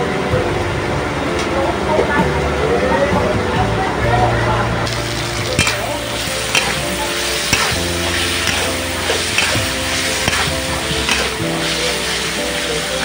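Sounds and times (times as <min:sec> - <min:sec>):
soft background music: 0:00.0 - 0:13.0
food sizzling in a pan: 0:04.9 - 0:13.0
spatula clinking against pan: 0:07.5 - 0:07.8, 0:08.4 - 0:10.5, 0:11.1 - 0:11.4.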